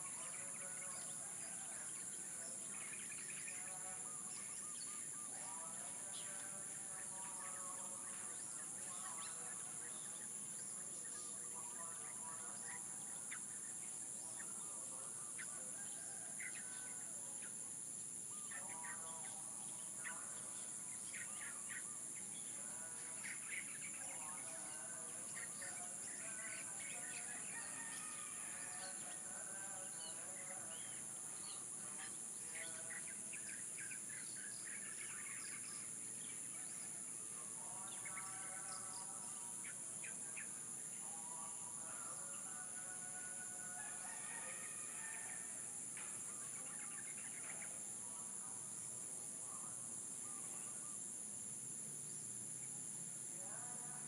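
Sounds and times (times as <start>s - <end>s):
roosters crowing: 27.1s - 30.2s, 42.5s - 45.8s.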